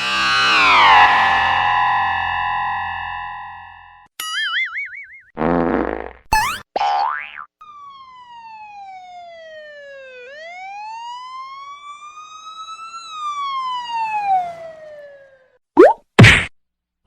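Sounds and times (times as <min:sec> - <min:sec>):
siren wail: 0:00.0 - 0:03.9, 0:07.6 - 0:15.6.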